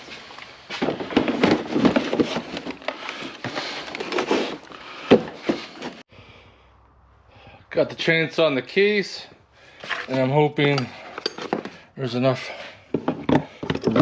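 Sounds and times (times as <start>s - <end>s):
chainsaw rubbing and clattering in case: 9.8s - 11.9s, 12.8s - 14.0s.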